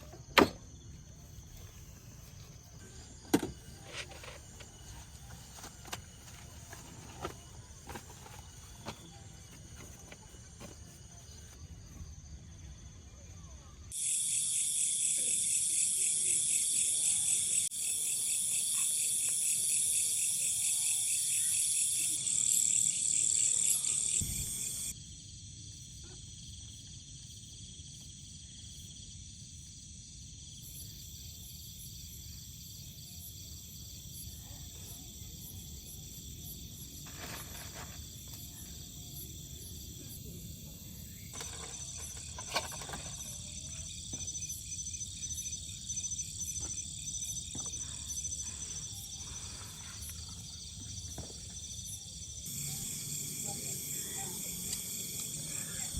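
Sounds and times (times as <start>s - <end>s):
crickets trilling: 0.0s - 55.9s
pulsing insect trilling: 13.9s - 24.9s, 38.0s - 55.9s.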